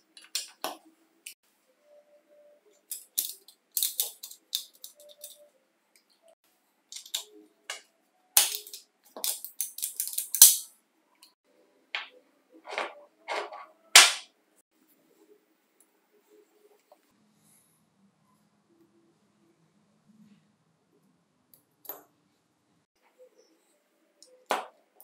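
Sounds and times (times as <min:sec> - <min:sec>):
small hard parts and tools clacking: 0:02.8 - 0:11.4.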